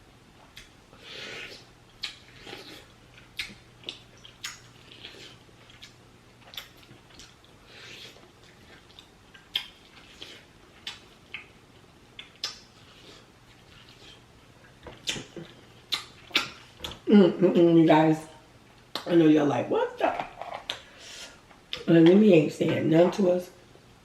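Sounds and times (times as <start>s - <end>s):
chewing: 0.5s - 17.0s.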